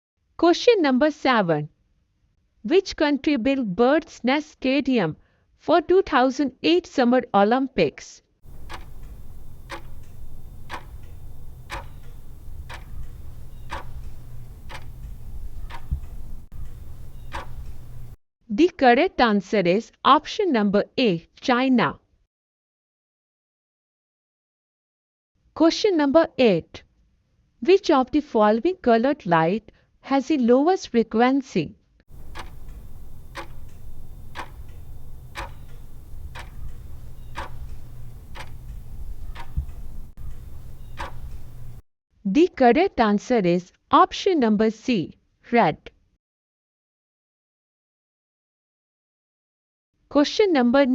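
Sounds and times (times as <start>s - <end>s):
clock ticking: 8.4s - 18.2s, 32.1s - 41.8s
steady low hum: 8.5s - 18.2s, 32.1s - 41.8s.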